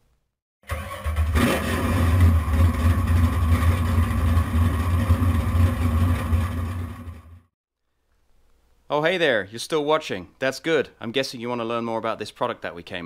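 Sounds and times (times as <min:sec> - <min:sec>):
car engine starting and rumbling: 0:00.7 - 0:07.5.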